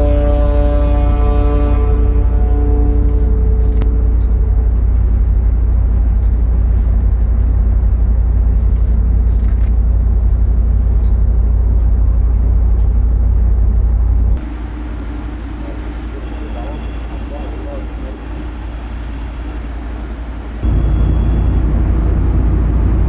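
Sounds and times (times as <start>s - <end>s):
loud low rumble: 0.0s - 23.0s.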